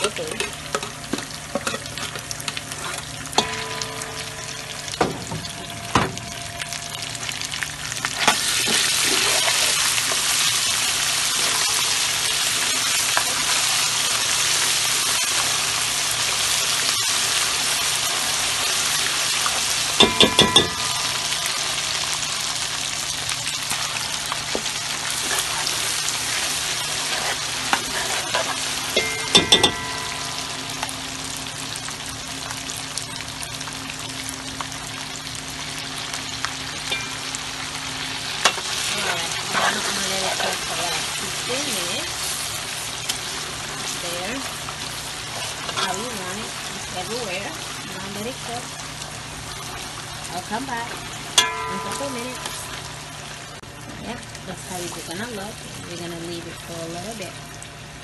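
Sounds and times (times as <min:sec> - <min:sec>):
tomato paste sizzling in oil: 0:00.0 - 0:58.0
metal spoon clinking on pot: 0:20.0 - 0:21.6, 0:28.3 - 0:30.5, 0:51.4 - 0:52.8.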